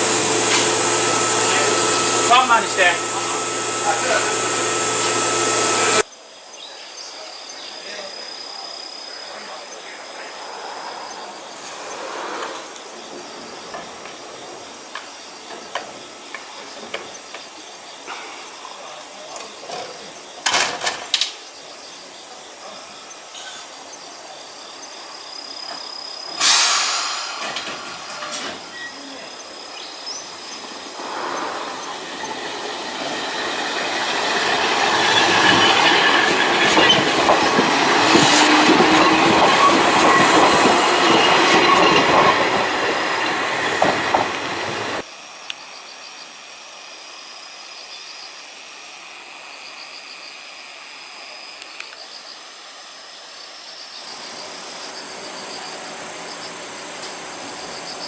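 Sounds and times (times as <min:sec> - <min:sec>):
wheels squealing: 0:00.0 - 0:06.0, 0:30.6 - 0:45.0
train wheels on rails: 0:00.0 - 0:06.1, 0:26.3 - 0:28.9, 0:30.2 - 0:45.1, 0:54.2 - 0:58.0
short loud burst of noise: 0:26.4 - 0:28.6.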